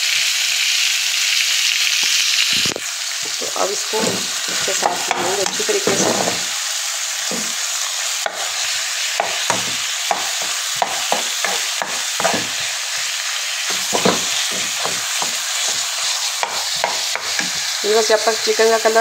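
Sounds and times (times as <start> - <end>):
meat sizzling in hot oil: 0.0 - 19.0
plastic spoon scraping and tapping: 9.2 - 12.7, 13.7 - 17.7.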